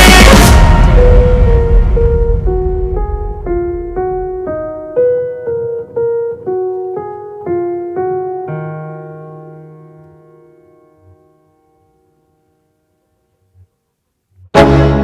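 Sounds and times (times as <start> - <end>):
piano melody: 0.0 - 12.8.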